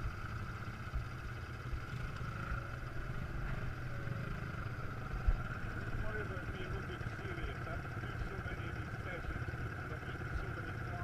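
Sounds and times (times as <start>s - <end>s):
quad bike engine droning: 0.0s - 11.0s.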